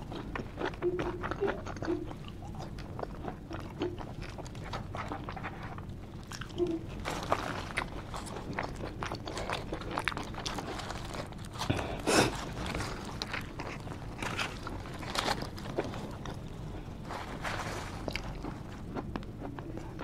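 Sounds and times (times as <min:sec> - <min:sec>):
wet chewing smacks and clicks: 0:00.0 - 0:11.8.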